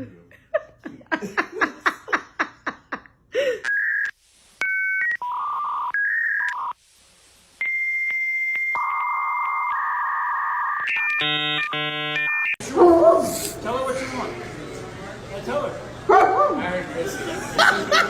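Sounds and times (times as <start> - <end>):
long steady telephone tone: 3.6 - 6.8, 7.6 - 12.6
keypad dialling tones: 7.6 - 12.6.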